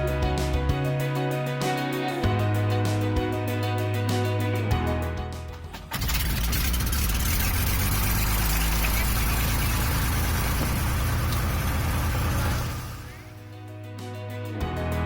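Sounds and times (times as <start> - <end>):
music: 0.0 - 6.6, 12.8 - 15.0
propeller plane engine: 5.8 - 13.4.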